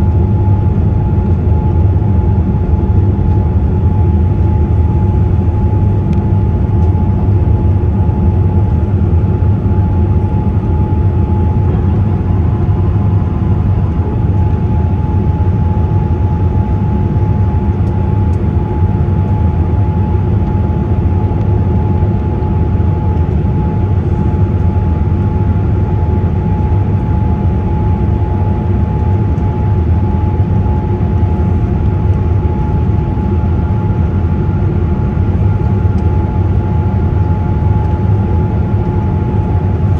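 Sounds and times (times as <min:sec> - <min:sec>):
airliner cabin engine rumble: 0:00.0 - 0:39.9
thin steady whine: 0:08.2 - 0:21.0.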